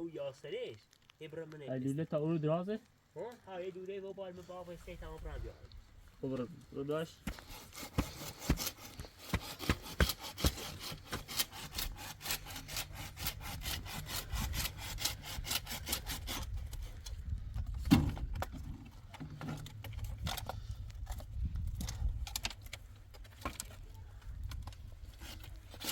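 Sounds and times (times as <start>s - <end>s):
hand saw sawing: 7.3s - 17.1s, 25.1s - 25.9s.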